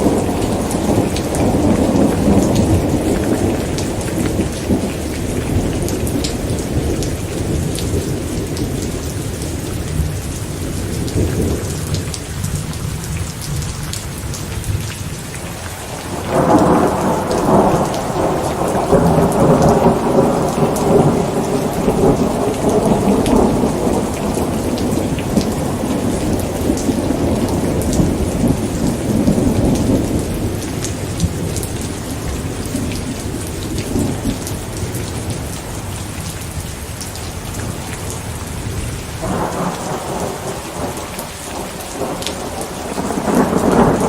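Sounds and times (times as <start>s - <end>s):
rolling thunder: 0.0s - 12.6s, 15.9s - 36.0s, 37.6s - 44.0s
heavy rain: 0.0s - 44.0s.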